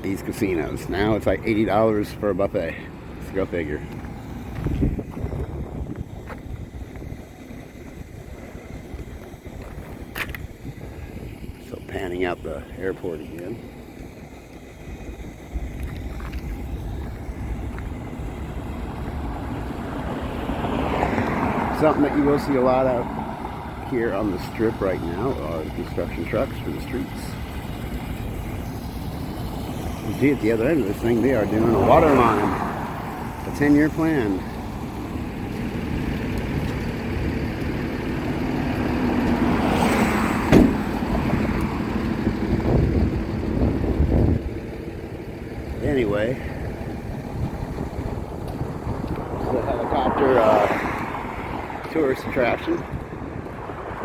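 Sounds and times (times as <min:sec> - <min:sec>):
low rumble of passing vehicles: 0:00.0 - 0:54.0
street traffic: 0:00.0 - 0:54.0.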